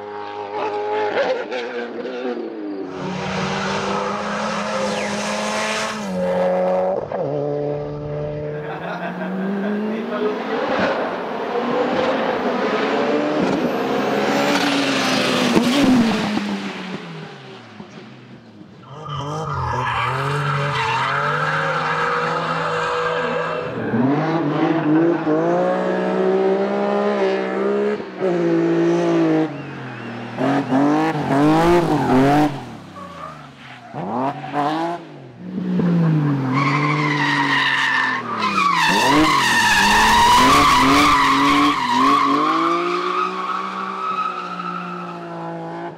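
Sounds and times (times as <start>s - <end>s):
racing car engines revving: 0.0s - 45.9s.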